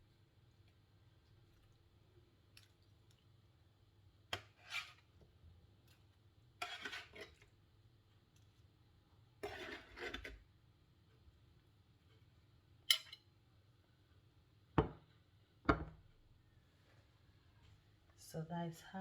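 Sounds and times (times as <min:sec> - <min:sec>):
utensils scraping a serving dish: 0:04.4 - 0:05.1, 0:06.6 - 0:07.4, 0:09.4 - 0:10.4.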